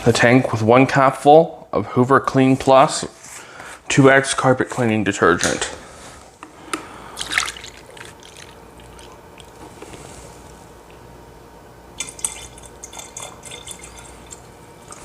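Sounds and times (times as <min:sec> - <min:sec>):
liquid pouring and dripping: 0:07.2 - 0:09.6, 0:12.0 - 0:15.0.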